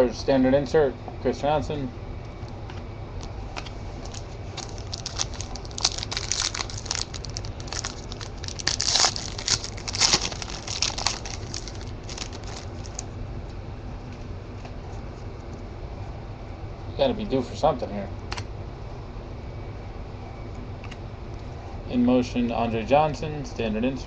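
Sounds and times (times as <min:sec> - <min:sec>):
wrapper crinkling: 0:04.0 - 0:13.1.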